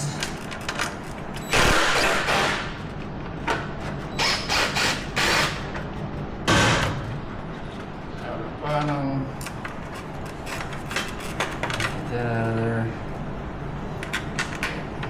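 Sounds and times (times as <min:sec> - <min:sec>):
power tool running in bursts: 0:01.5 - 0:02.8, 0:04.1 - 0:05.7.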